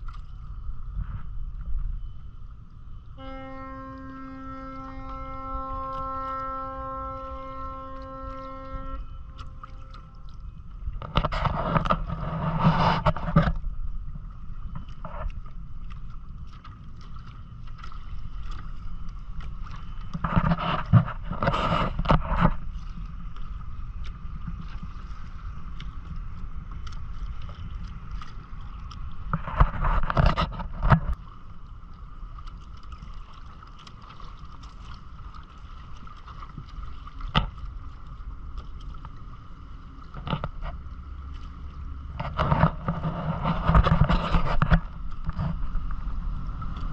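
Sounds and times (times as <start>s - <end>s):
faint high hum: 0.0s - 22.0s
water and wind rumble: 0.0s - 46.9s
water splashing and rushing: 3.2s - 46.9s.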